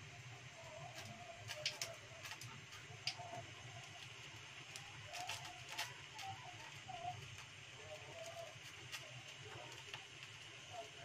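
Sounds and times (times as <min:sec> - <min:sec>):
bird cooing: 0:05.0 - 0:09.8.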